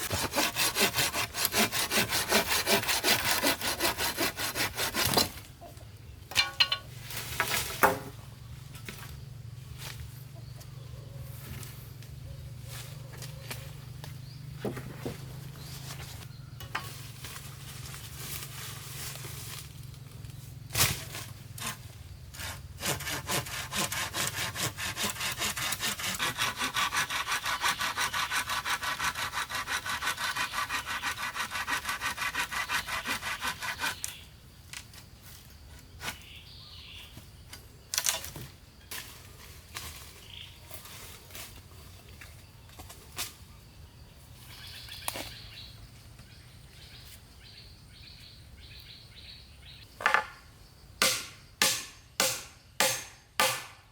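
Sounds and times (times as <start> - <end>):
hand saw cutting wood: 0.0 - 5.4, 20.8 - 34.2, 51.0 - 53.8
wood knocking: 7.8 - 8.1, 50.0 - 50.4.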